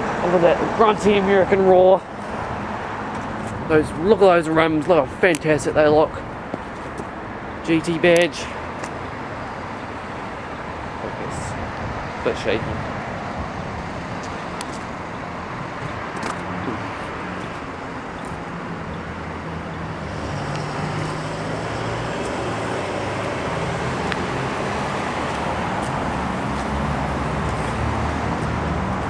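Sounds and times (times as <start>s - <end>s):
car engine idling: 2.1s - 28.5s.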